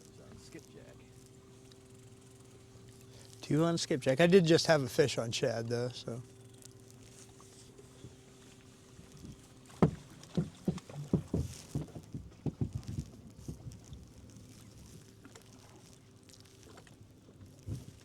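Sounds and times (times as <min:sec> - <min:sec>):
faint steady hum: 0:00.0 - 0:18.0
knocks on boat hull: 0:09.2 - 0:13.7.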